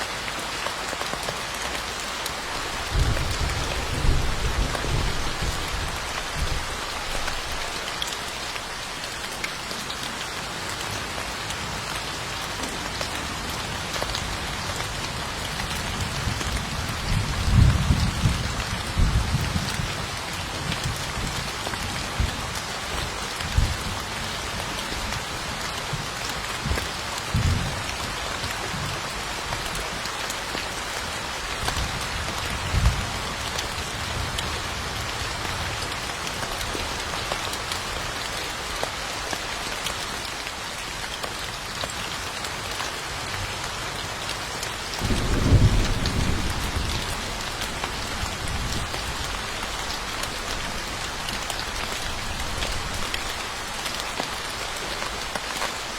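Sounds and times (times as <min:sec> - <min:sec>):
steady rain: 0:00.0 - 0:55.9
thunder rumbling: 0:02.6 - 0:07.8, 0:45.0 - 0:49.5.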